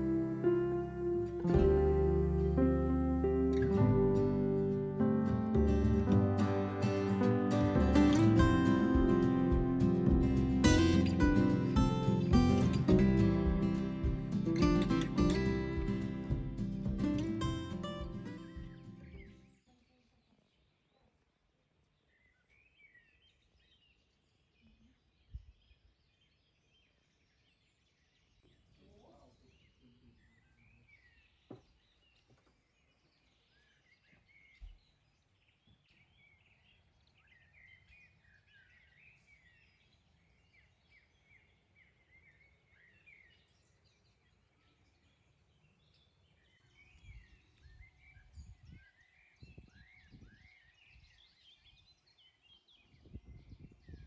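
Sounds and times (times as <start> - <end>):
soft low thumps: 0.0 - 6.6, 7.2 - 19.4
low rumbling: 0.0 - 19.4
small birds chirping: 3.6 - 54.0.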